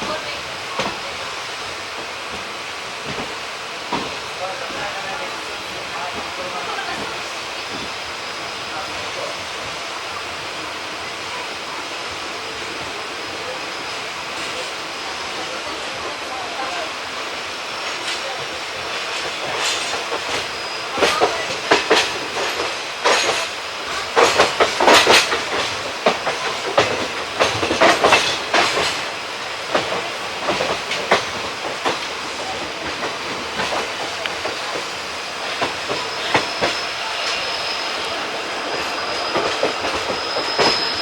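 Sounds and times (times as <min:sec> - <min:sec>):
wheels clattering over rail joints: 0:18.0 - 0:37.3.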